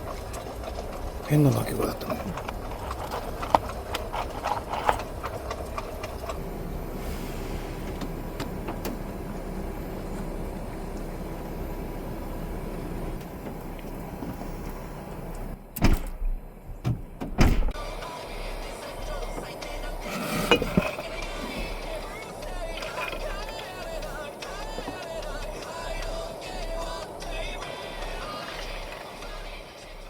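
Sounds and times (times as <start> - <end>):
heavy thumps: 15.8 - 17.8.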